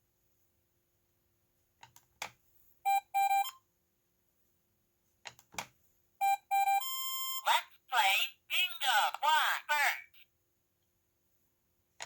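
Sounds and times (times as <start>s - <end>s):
short electronic beeps: 2.9s - 3.6s.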